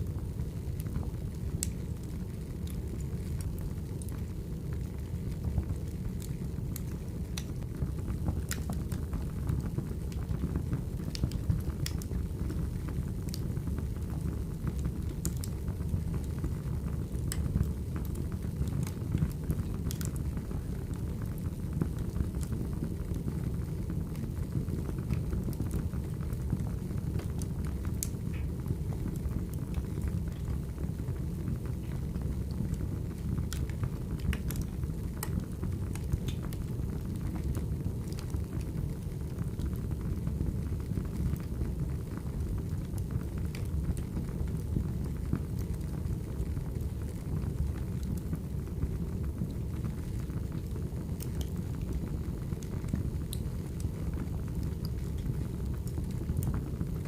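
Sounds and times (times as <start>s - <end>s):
fire crackling and popping: 0.0s - 57.0s
firewood burning with low rush: 0.0s - 57.0s.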